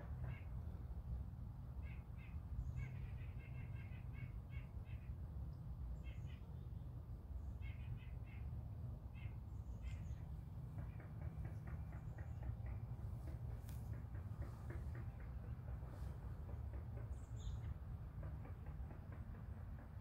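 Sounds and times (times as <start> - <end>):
birds calling harshly: 1.8 - 5.2, 7.5 - 17.8.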